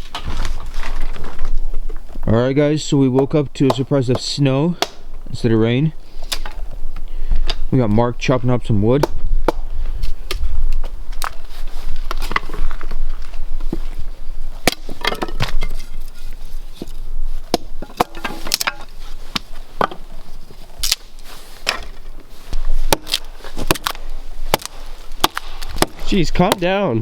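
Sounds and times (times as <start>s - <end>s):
blade chopping firewood: 3.1s - 5.3s, 8.9s - 11.4s, 14.6s - 26.8s.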